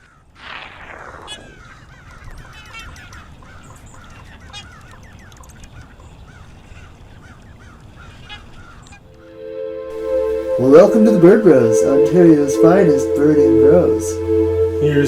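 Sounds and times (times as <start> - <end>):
geese honking: 8.1 - 15.0.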